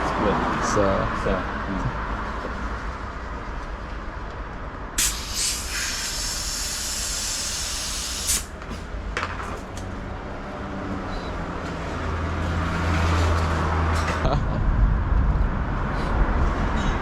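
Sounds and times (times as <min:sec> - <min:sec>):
hissing air rush: 0:05.0 - 0:08.6
low vehicle engine rumble: 0:08.5 - 0:17.0.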